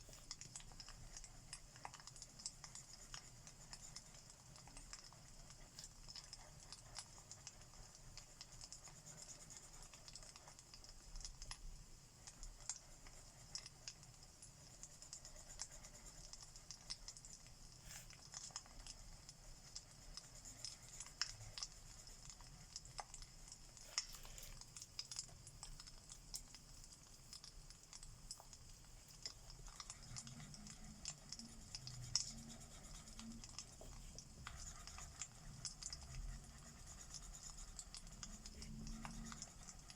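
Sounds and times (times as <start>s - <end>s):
crackling fire: 0.0s - 39.9s
marker scratching on paper: 32.3s - 34.8s.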